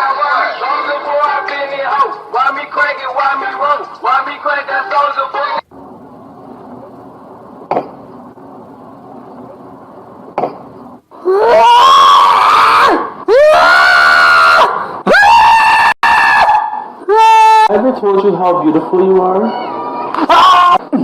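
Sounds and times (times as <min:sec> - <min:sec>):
faint steady hum: 0:00.0 - 0:15.2.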